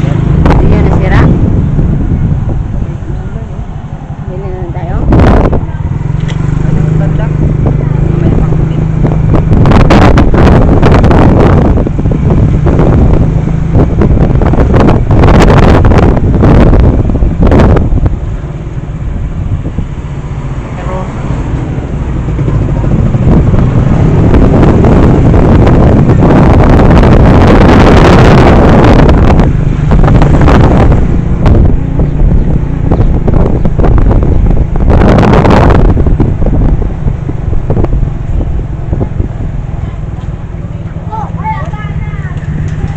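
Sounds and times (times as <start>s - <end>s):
vehicle engine hum: 0.0s - 42.9s
wind buffeting microphone: 0.0s - 42.9s.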